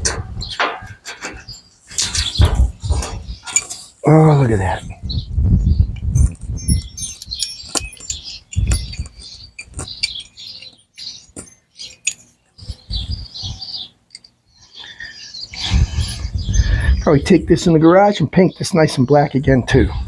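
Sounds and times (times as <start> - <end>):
birds chirping: 0.0 - 20.0
metallic clicks and clinks: 11.8 - 12.3, 14.1 - 14.4.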